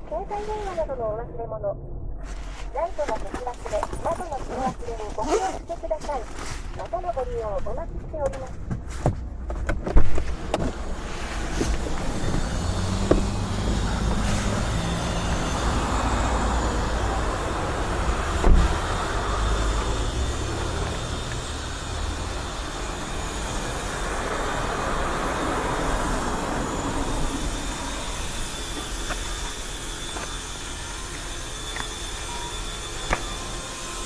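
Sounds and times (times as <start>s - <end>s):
motor vehicle rumbling: 7.4s - 34.0s.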